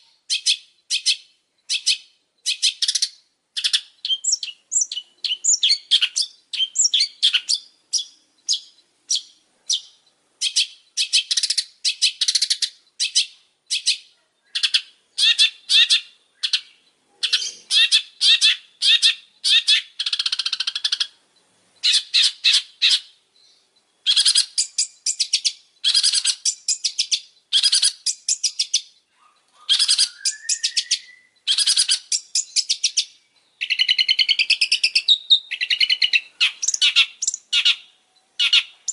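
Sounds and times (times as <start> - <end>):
shrike singing: 21.8 - 38.9.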